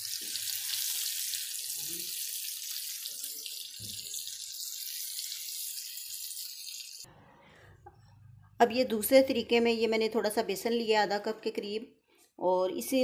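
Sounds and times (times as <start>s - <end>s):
chilies frying in hot oil: 0.0s - 7.1s.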